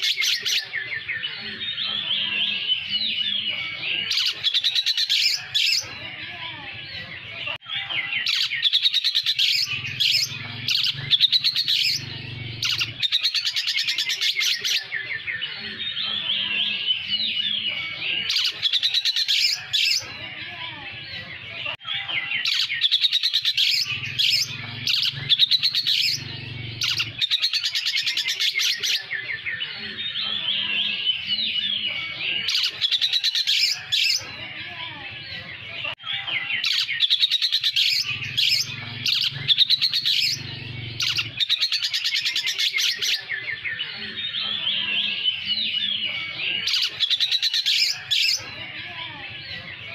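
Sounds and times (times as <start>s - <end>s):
harsh bird chattering: 8.0s - 14.9s, 22.0s - 29.2s, 36.1s - 43.4s.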